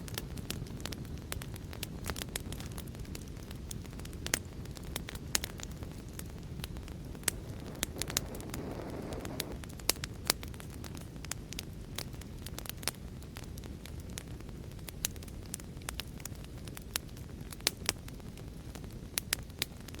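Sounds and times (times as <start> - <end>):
sharp pops of fire: 0.0 - 20.0
wood fire crackling: 0.0 - 20.0
brief hiss: 7.2 - 9.6.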